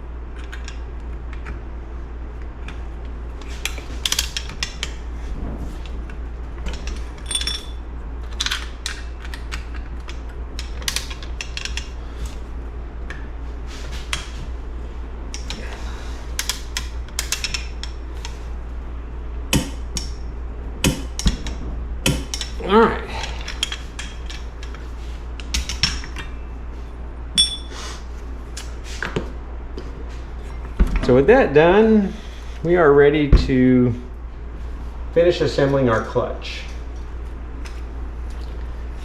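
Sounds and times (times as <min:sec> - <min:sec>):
steady low hum: 0:00.0 - 0:39.0
metal tools clinking: 0:07.2 - 0:07.8, 0:27.4 - 0:27.8.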